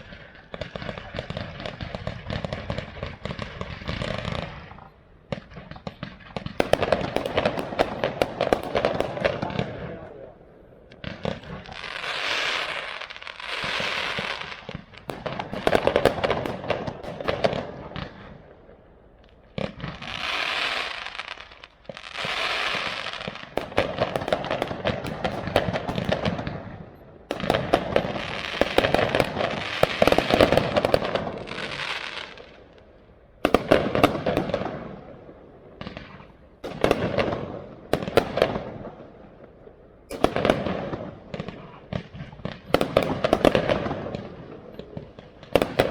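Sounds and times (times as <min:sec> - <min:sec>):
fireworks crackling: 0:00.0 - 0:45.9.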